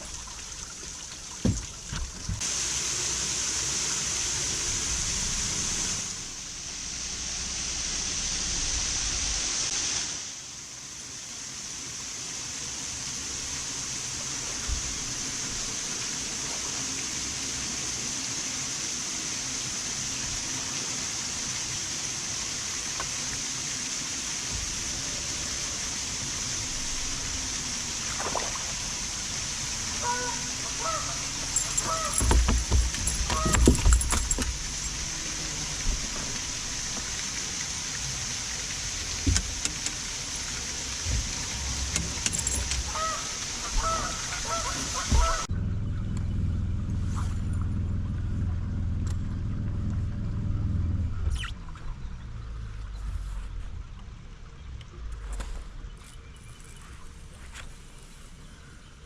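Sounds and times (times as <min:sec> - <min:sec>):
rushing trickling water: 0:00.0 - 0:45.5.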